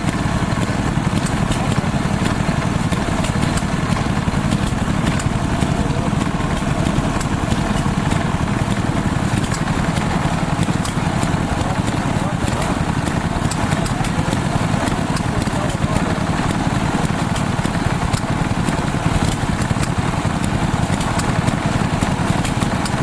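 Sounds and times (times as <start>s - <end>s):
small engine chugging: 0.0s - 23.0s.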